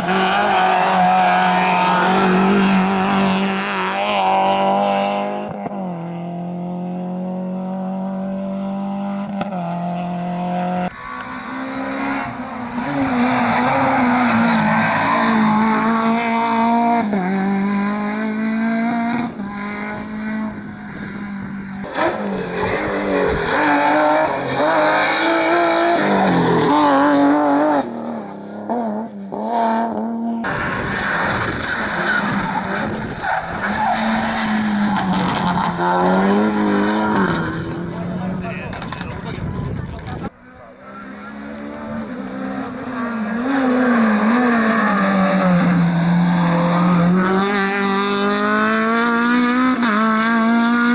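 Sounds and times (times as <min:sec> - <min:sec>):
tyre squeal and skidding: 0:00.0 - 0:04.4, 0:10.8 - 0:16.9, 0:21.6 - 0:27.3, 0:30.5 - 0:37.9, 0:40.5 - 0:47.9
rally car engines revving: 0:00.0 - 0:50.9.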